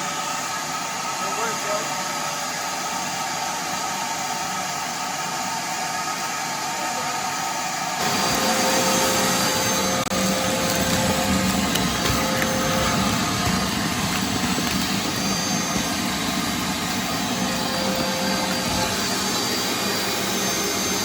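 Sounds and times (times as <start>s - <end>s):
shop vacuum sucking dirt: 5.2s - 21.0s.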